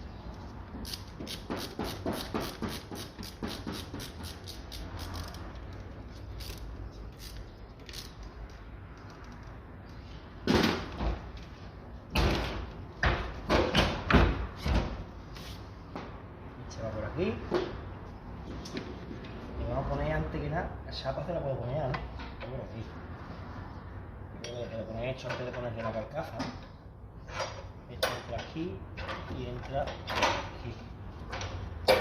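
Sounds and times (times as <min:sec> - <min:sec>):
heavy clunks and knocks on metal: 0:12.1 - 0:15.0.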